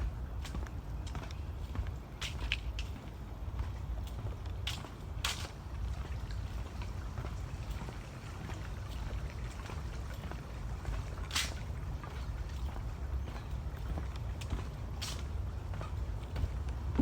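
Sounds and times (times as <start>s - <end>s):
wind rumble on microphone: 5.6s - 17.0s
footsteps on trail: 8.4s - 17.0s.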